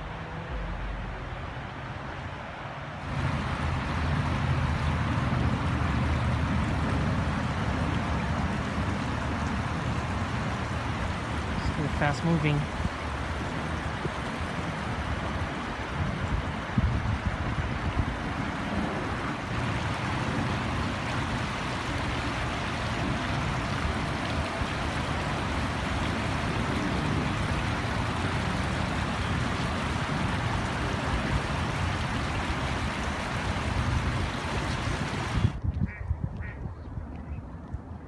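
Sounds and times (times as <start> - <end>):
floodwater rushing: 0.0 - 35.6.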